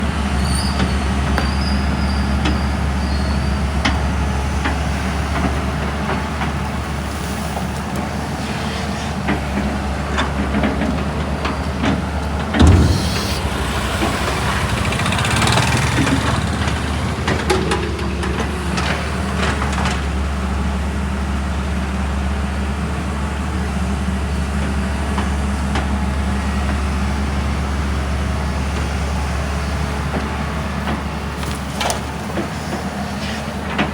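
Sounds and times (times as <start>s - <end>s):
heavy diesel machinery drone: 0.0s - 31.4s
loud thud: 12.6s - 15.8s
clattering: 12.6s - 19.9s.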